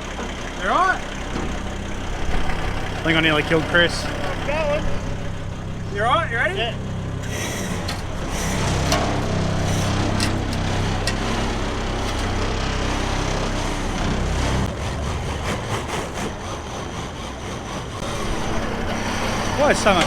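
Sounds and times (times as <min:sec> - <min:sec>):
metal clanks: 0:00.0 - 0:14.8
truck engine running: 0:00.0 - 0:20.0.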